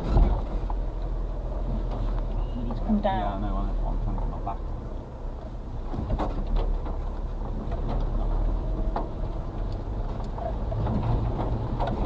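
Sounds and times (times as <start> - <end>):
knocks and rattles from truck bumping: 0.0 - 1.0, 5.8 - 12.0
truck engine running under load: 5.4 - 12.0.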